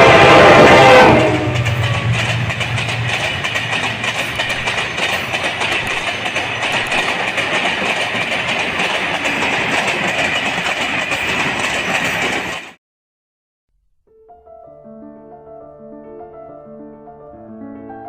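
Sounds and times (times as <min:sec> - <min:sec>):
train wagons rattling: 0:00.0 - 0:12.8
wheels clacking over rail joints: 0:00.0 - 0:12.8.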